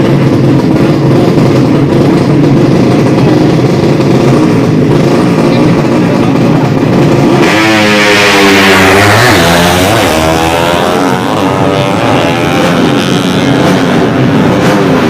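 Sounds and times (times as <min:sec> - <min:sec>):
motorcycle accelerating at full throttle: 0:00.0 - 0:15.0
motorcycle engines revving: 0:00.0 - 0:15.0.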